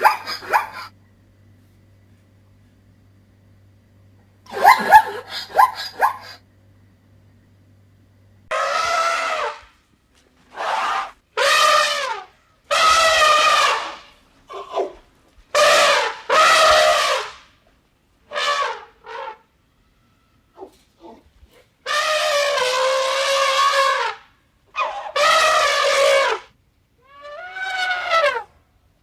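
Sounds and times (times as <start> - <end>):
animal horn-like calls: 0.0 - 1.0, 4.5 - 6.4, 8.5 - 9.8, 10.4 - 17.5, 18.2 - 28.6.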